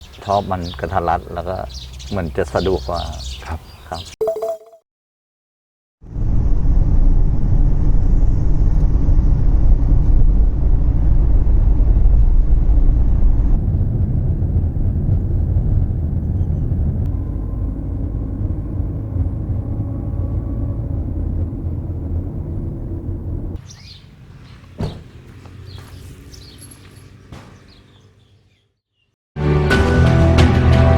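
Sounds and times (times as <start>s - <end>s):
vehicle engine rumbling: 6.1s - 28.5s.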